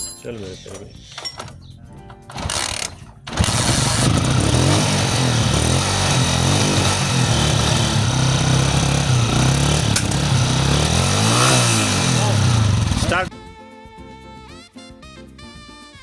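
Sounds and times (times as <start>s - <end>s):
road and wind noise: 0.7s - 13.3s
motorcycle engine running: 3.2s - 13.3s.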